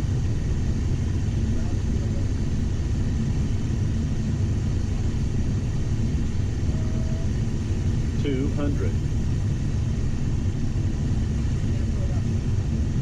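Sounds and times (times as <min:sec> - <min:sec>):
jet engine and airflow rumble: 0:00.0 - 0:13.0.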